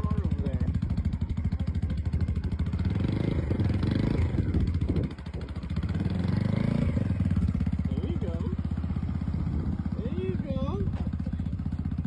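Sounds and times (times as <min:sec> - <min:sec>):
small motorcycle engine revving: 0:00.0 - 0:12.0.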